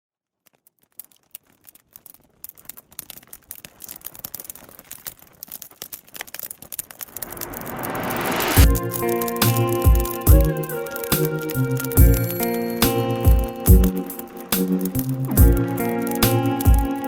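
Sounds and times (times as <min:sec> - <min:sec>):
wood fire crackling: 0:00.2 - 0:17.0
hiss: 0:07.1 - 0:08.6
deep music beat: 0:08.6 - 0:17.0.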